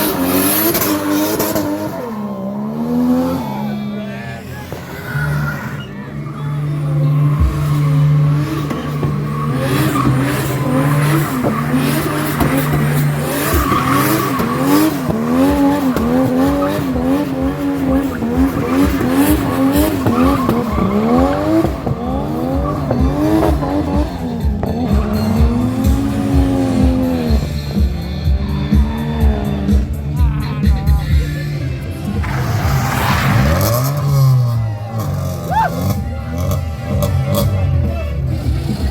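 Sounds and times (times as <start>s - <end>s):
car engine revving: 0.0s - 38.9s
tyres squealing: 4.3s - 27.3s.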